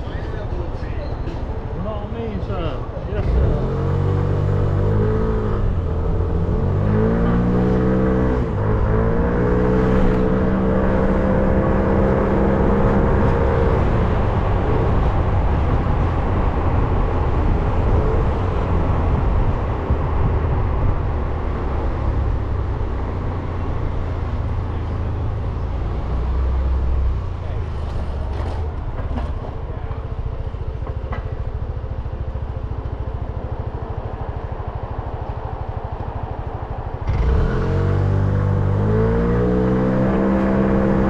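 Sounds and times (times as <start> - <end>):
road and wind noise: 0.0 - 41.0
motorcycle engine accelerating: 3.2 - 17.0, 35.8 - 41.0.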